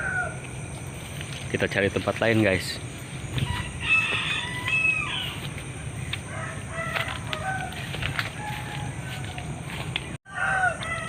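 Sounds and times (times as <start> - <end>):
rooster crowing: 0.0 - 0.5, 3.4 - 11.0.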